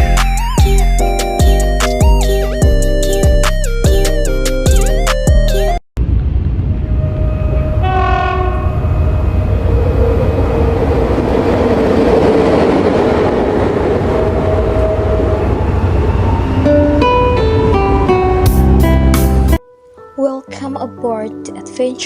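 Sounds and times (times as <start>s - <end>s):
music: 0.0s - 5.8s, 16.7s - 22.0s
train rumble and clatter: 6.0s - 18.4s
train horn: 6.8s - 9.1s.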